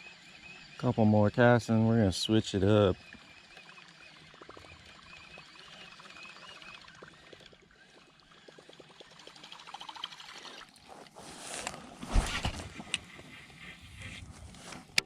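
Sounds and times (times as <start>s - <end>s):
fishing reel ticking: 0.0s - 10.9s.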